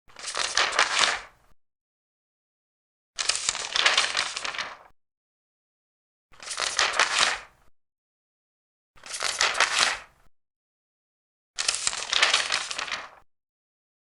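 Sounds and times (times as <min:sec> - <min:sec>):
paper pages turning: 0:00.1 - 0:01.4, 0:03.2 - 0:04.9, 0:06.4 - 0:07.5, 0:09.0 - 0:10.1, 0:11.6 - 0:13.2.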